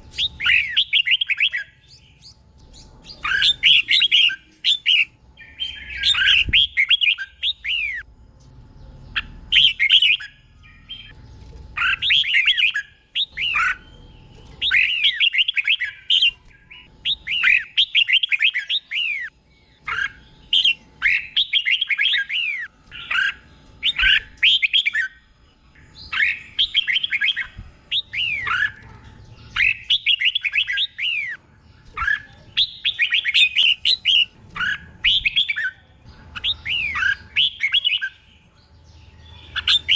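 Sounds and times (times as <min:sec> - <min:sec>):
bird singing whistled notes: 0:00.0 - 0:08.1, 0:09.0 - 0:11.2, 0:11.8 - 0:28.8, 0:29.4 - 0:39.9.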